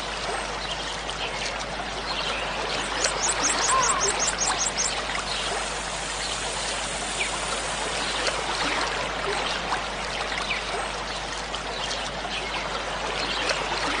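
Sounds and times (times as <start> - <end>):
water splashes: 0.0 - 14.0
waterfall rushing: 3.1 - 8.8.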